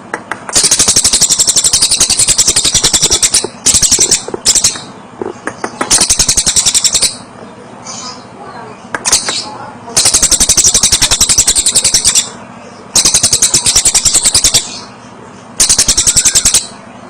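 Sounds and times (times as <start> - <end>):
bird rattling chatter: 0.5 - 7.2.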